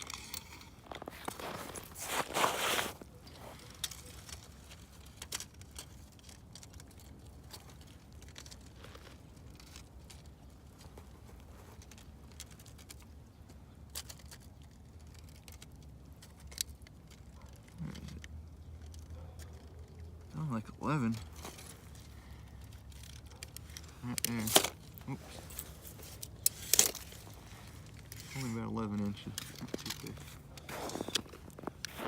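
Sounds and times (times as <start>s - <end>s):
crunching scrape: 0.0s - 13.1s, 21.0s - 32.0s
tape measure clicks and scrapes: 22.7s - 32.0s.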